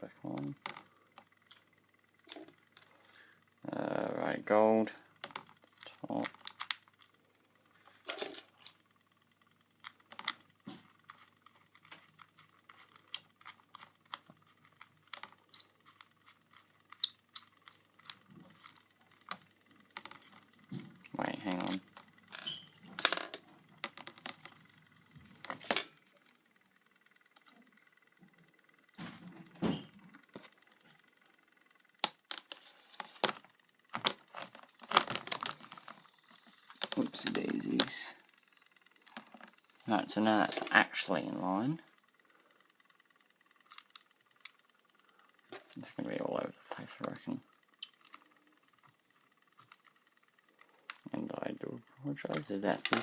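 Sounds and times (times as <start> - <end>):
plastic fan parts clicking: 5.2 - 7.2, 7.9 - 26.4, 30.1 - 41.2, 42.0 - 53.0
plastic parts clicking together: 9.8 - 20.4, 32.0 - 38.0.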